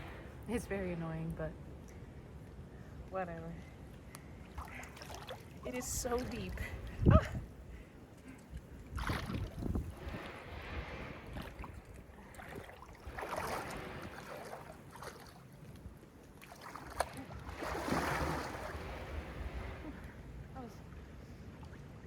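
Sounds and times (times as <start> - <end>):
water splashing around swimmer: 4.5 - 7.1, 8.3 - 20.1.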